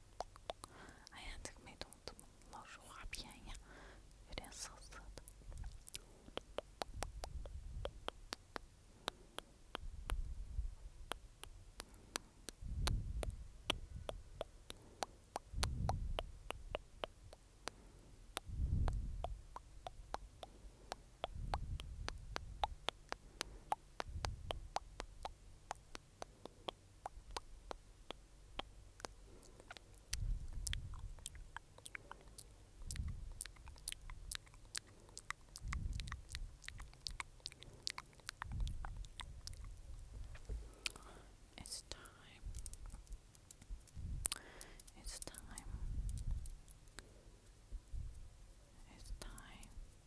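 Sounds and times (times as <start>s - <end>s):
wet mouth clicks and smacks: 0.0s - 47.1s, 48.9s - 49.8s
low muffled rumbling: 12.6s - 14.3s, 35.6s - 37.2s, 38.4s - 40.9s, 42.4s - 44.4s.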